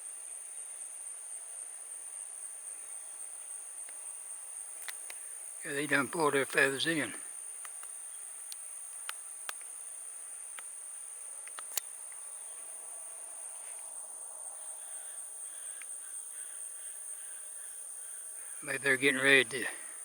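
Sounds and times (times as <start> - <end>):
high-pitched insect chorus: 0.0 - 20.0
sharp clicks: 4.8 - 5.2, 11.4 - 11.9.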